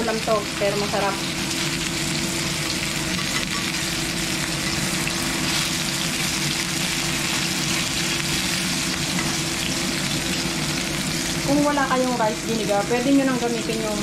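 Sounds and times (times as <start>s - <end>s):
tofu sizzling in a pan: 0.0s - 14.0s.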